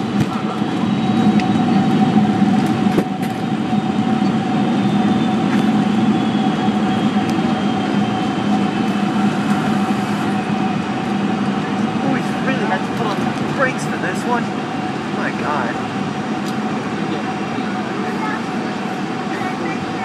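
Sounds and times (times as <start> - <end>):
aircraft engines and runway roar: 0.0 - 20.0.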